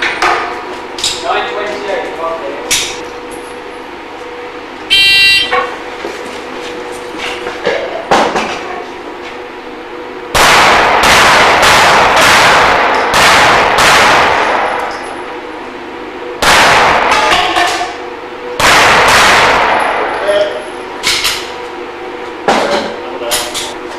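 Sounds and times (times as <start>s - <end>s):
shot timer beep: 4.9s - 5.6s
pistol shots: 10.3s - 15.0s, 16.4s - 17.5s, 18.6s - 20.1s.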